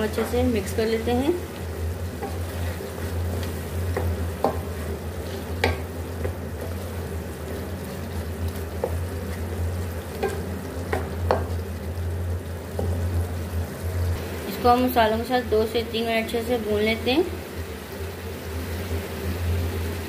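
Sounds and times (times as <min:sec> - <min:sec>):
food sizzling in oil: 0:00.0 - 0:20.0
steady low hum: 0:00.0 - 0:20.0
spoon scraping and knocking pan: 0:02.1 - 0:06.9, 0:10.1 - 0:11.6.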